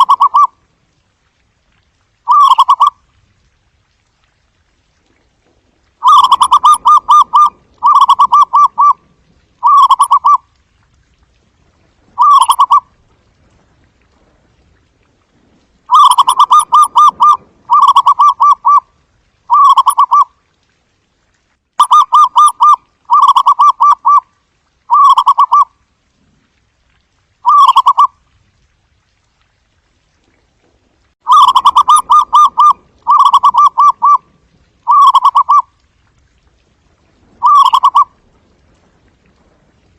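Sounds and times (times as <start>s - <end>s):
dove cooing: 0.0s - 0.5s, 2.3s - 2.9s, 6.0s - 9.0s, 9.6s - 10.4s, 12.2s - 12.8s, 15.9s - 18.8s, 19.5s - 20.2s, 21.8s - 24.2s, 31.3s - 34.2s, 34.8s - 35.6s, 37.4s - 38.1s.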